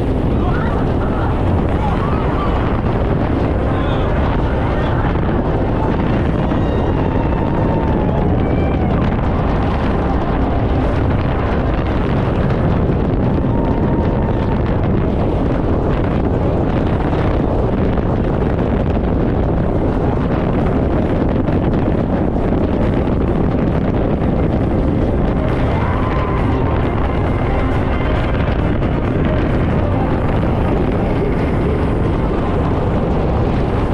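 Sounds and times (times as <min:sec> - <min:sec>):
speedboat engine: 0:00.0 - 0:33.9
water rushing: 0:00.0 - 0:33.9
wind buffeting microphone: 0:00.0 - 0:33.9.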